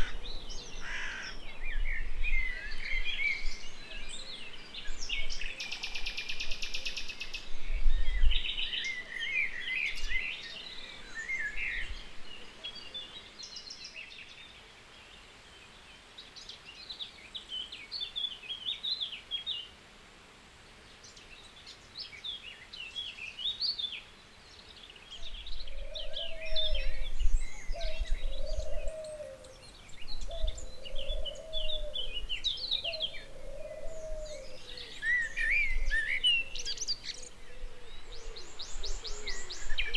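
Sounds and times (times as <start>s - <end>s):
songbirds chirping and singing: 0.0s - 19.8s, 20.9s - 39.9s
lower bird call: 25.2s - 39.9s.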